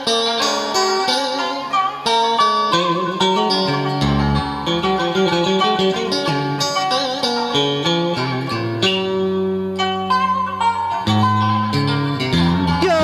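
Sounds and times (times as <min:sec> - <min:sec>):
plucked guitar melody: 0:00.0 - 0:13.0
bass line: 0:04.0 - 0:05.0, 0:11.1 - 0:13.0.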